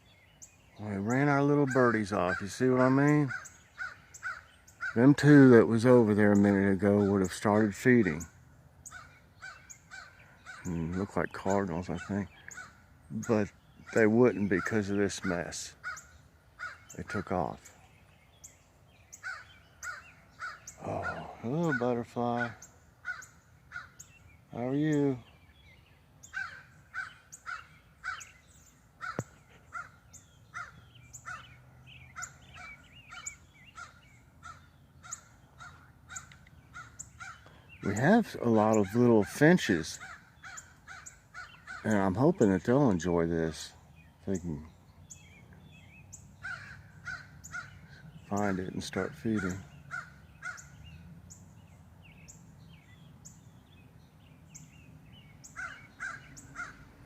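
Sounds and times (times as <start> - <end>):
small birds twittering: 0.0 - 57.0
small songbirds chirping: 0.0 - 57.0
crows cawing: 1.1 - 5.5, 6.2 - 17.5, 19.1 - 24.3, 26.2 - 38.0, 38.6 - 42.2, 46.4 - 48.6, 49.2 - 51.0, 55.4 - 57.0.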